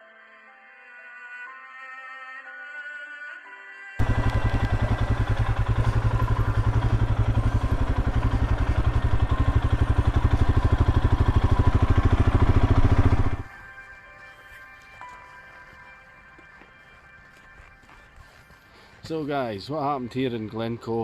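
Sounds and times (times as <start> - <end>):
motorcycle engine running: 4.0 - 13.5.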